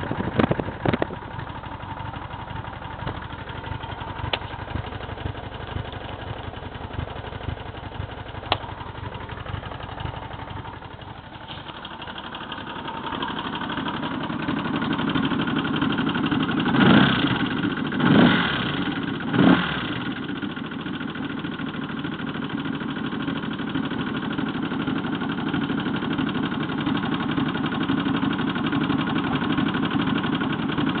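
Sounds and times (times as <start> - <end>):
engine throttle blips: 0.0 - 13.6
motorcycle engine idling with knocking: 0.0 - 31.0.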